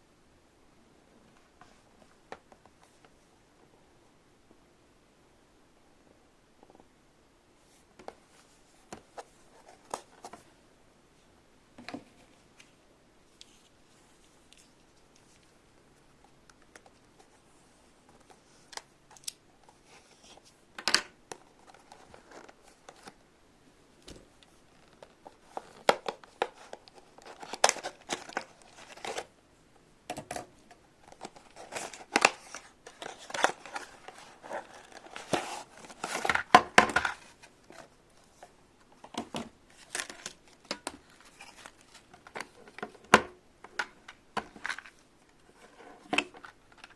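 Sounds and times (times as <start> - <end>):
hands crinkling and tearing packaging: 24.8 - 29.3, 31.0 - 42.9.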